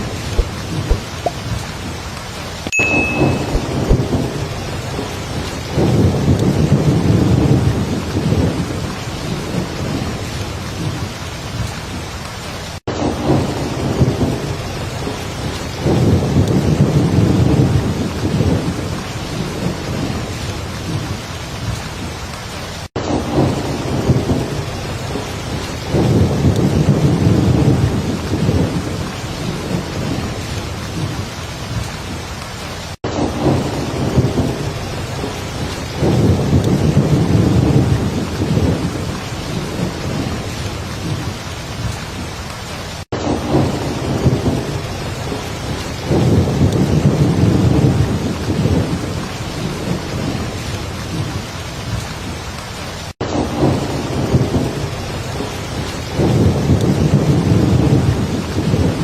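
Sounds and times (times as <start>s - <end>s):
rolling thunder: 0.0s - 2.0s, 3.1s - 12.1s, 12.8s - 22.1s, 22.9s - 32.2s, 33.0s - 52.1s, 53.2s - 59.0s
heavy rain: 0.0s - 59.0s.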